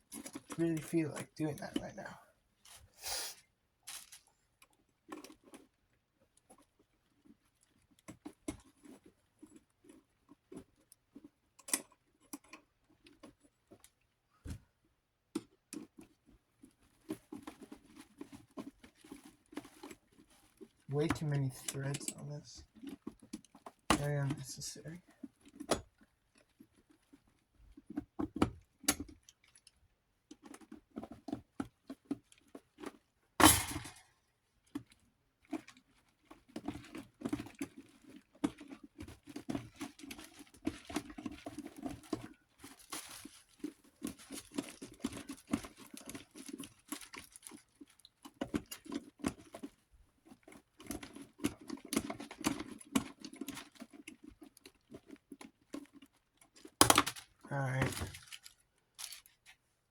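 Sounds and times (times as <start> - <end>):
small metal clicks and scrapes: 0.0 - 2.9, 3.8 - 14.0, 15.4 - 59.7.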